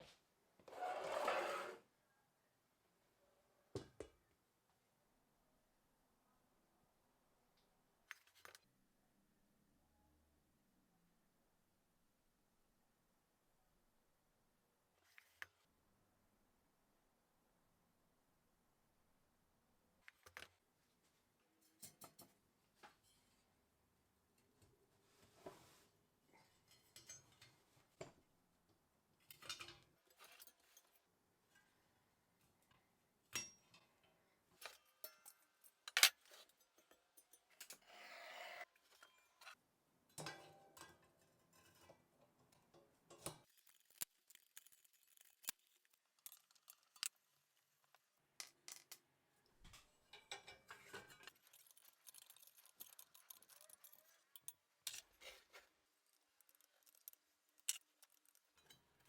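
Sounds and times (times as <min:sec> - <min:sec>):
metal scraping on workbench: 0:00.7 - 0:01.8
small metal parts clinking: 0:43.4 - 0:47.3, 0:50.1 - 0:59.0.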